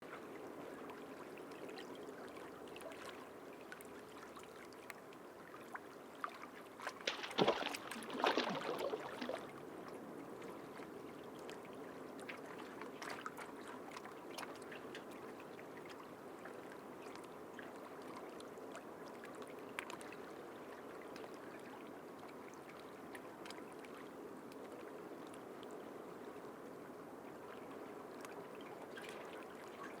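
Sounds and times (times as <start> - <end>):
sea water lapping: 6.1 - 9.6
water splashing: 6.8 - 9.5.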